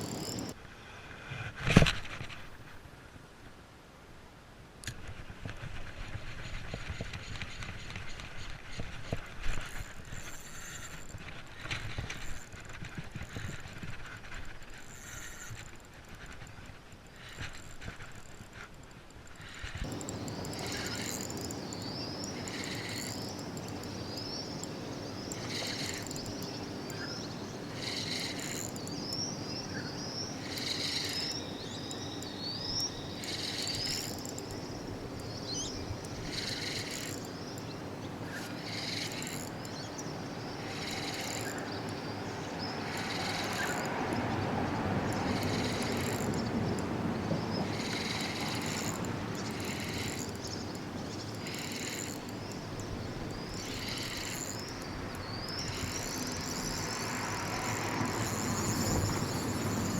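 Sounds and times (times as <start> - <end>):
birds chirping: 0.0 - 0.6, 19.8 - 59.9
insects chirping: 0.0 - 0.6, 19.4 - 59.9
road traffic noise: 0.0 - 0.6, 19.8 - 59.9.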